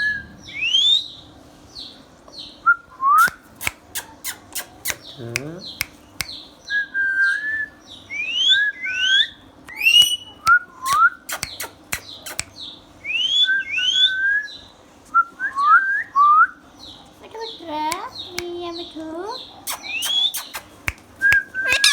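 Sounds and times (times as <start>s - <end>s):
parrot clicks: 3.2s - 6.4s, 9.7s - 12.6s, 19.7s - 21.9s
parrot chirp: 3.2s - 6.5s, 7.2s - 14.6s, 17.4s - 21.9s
parrot whistling rising glides: 8.2s - 11.0s, 21.2s - 21.9s.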